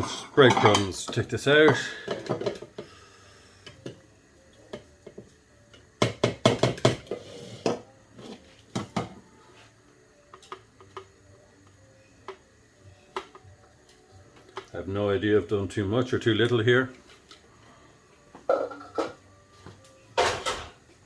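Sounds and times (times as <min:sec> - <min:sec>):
dishes clattering: 0:00.0 - 0:02.9, 0:06.0 - 0:07.9, 0:18.4 - 0:19.2, 0:20.2 - 0:20.8.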